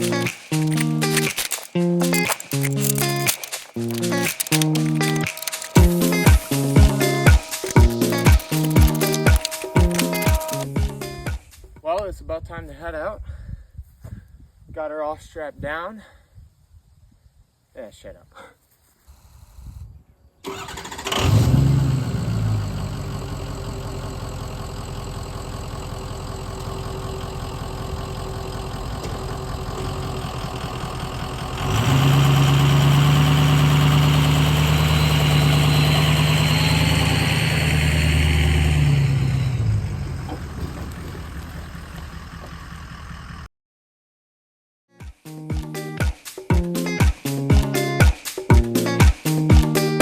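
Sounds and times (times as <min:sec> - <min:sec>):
vehicle engine starting and idling: 0:00.0 - 0:11.3, 0:20.4 - 0:43.5.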